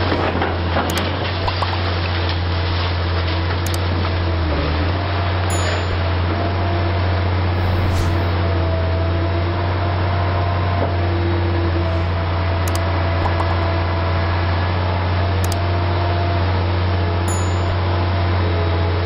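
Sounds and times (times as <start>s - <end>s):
excavator diesel drone: 0.0s - 19.0s
rushing noise: 7.5s - 8.4s
faint whining tones: 11.5s - 13.7s.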